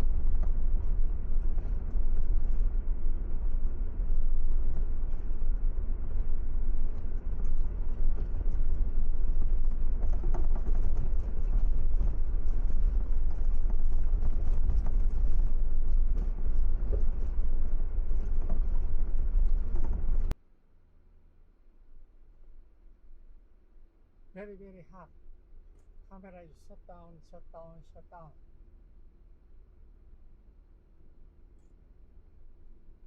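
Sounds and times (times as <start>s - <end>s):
car driving rumble: 0.0s - 20.4s
road and wind noise: 0.0s - 20.4s.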